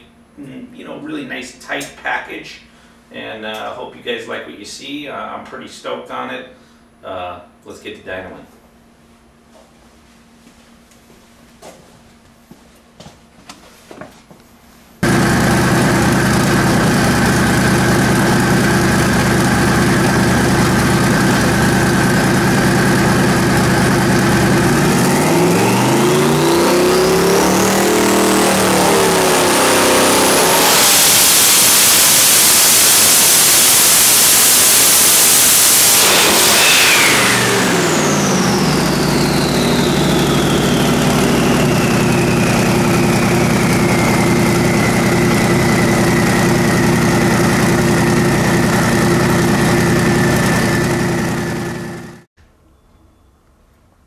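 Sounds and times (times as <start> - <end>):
engine idling and revving: 15.0 - 52.3
turbocharger whine: 15.0 - 52.3.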